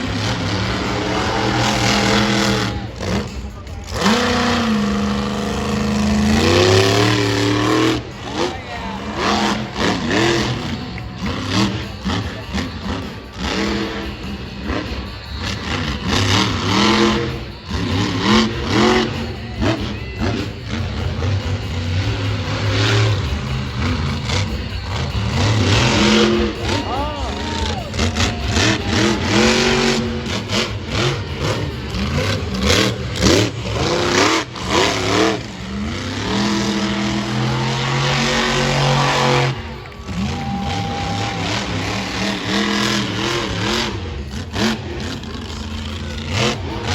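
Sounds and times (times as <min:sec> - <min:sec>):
monster truck engine revving: 0:00.0 - 0:46.9
steady noisy background: 0:00.0 - 0:46.9.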